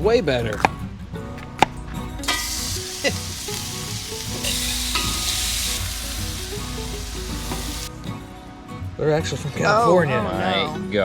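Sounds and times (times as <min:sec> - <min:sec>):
bacon sizzling in a frying pan: 0:02.2 - 0:07.9.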